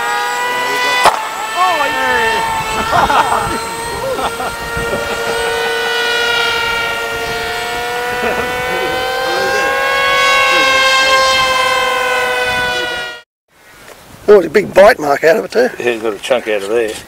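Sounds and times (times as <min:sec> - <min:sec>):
small electric motor whining: 0:00.0 - 0:13.2.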